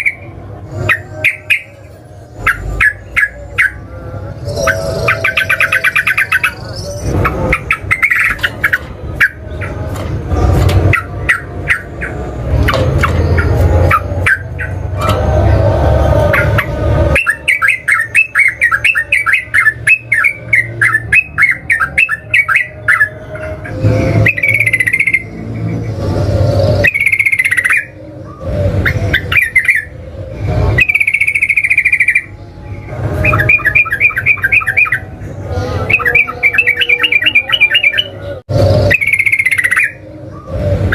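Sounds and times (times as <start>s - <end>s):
bird singing chattering notes: 0.0s - 15.2s, 16.3s - 40.9s
bird whistled phrases: 17.2s - 23.2s, 30.8s - 32.3s, 33.2s - 35.1s, 35.8s - 38.2s, 38.8s - 40.6s.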